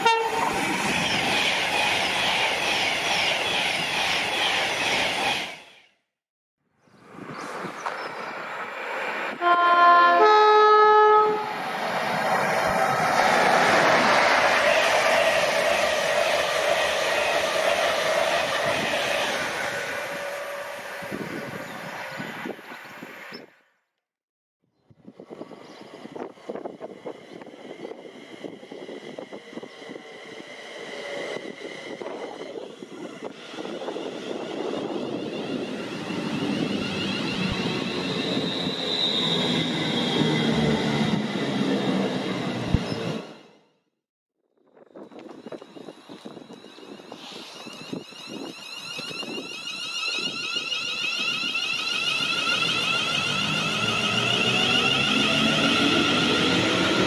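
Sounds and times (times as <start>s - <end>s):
train two-tone horn: 0.0s - 0.5s, 9.4s - 11.6s
train rushing past: 0.0s - 5.9s, 7.5s - 23.2s, 25.2s - 43.7s, 45.2s - 57.0s
high ringing tones: 46.7s - 53.8s.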